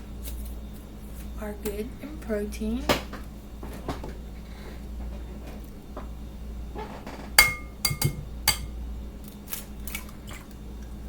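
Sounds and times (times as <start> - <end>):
utensil clinking against dish: 7.4 - 8.8.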